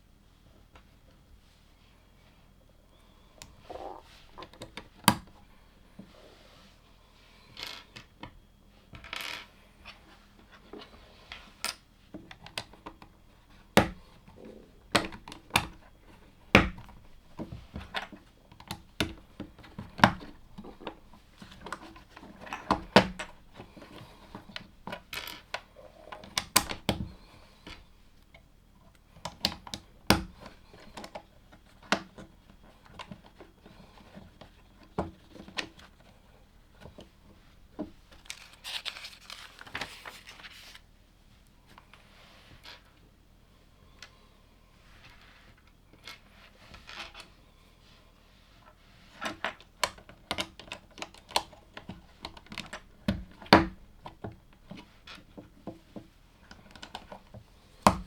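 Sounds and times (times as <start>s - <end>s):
loose plastic pieces rustling: 38.1s - 40.8s.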